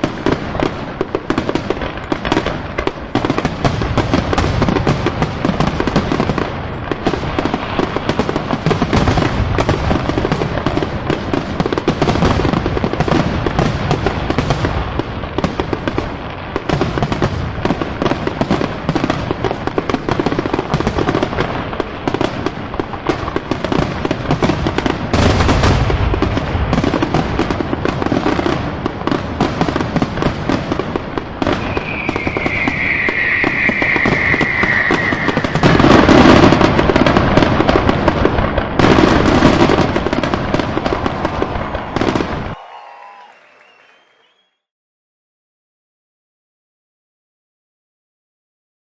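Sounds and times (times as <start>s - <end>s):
heavy firework booms: 0.0s - 42.8s
fireworks bursts and crackling: 0.0s - 44.5s
high firework whistle: 31.5s - 36.6s, 40.0s - 44.7s.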